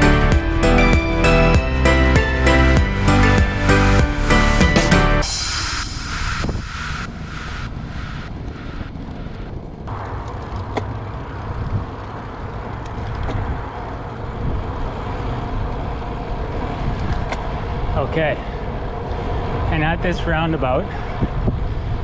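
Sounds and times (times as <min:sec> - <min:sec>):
background music: 0:00.0 - 0:06.6
wind and road noise: 0:06.0 - 0:18.0.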